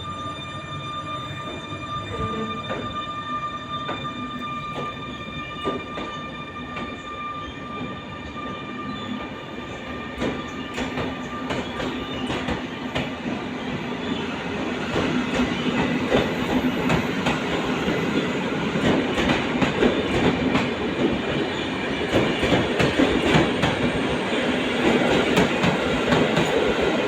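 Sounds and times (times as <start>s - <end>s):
train rumble: 0.0s - 27.0s
train wheels clicking on rails: 10.1s - 27.0s.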